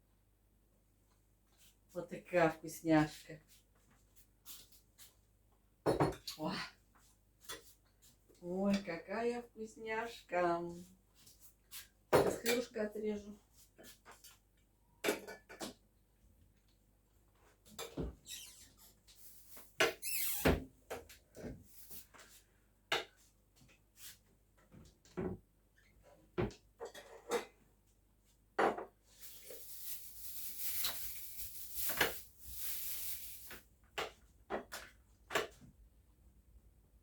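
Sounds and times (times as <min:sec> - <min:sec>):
rustling and scraping: 0:29.0 - 0:33.7.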